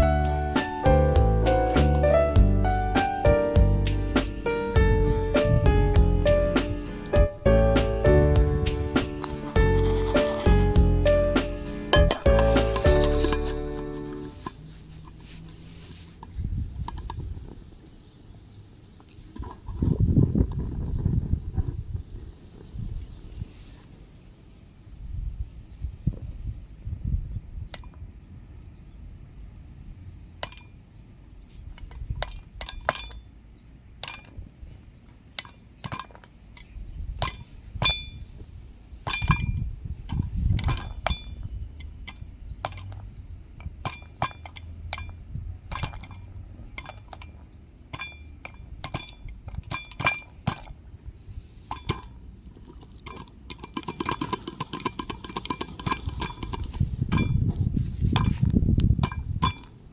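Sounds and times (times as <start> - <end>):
popcorn popping in metal pot: 51.7 - 57.4.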